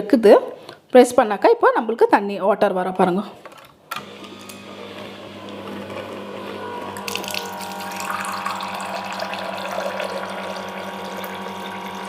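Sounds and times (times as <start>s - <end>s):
electric hum: 5.1s - 12.0s.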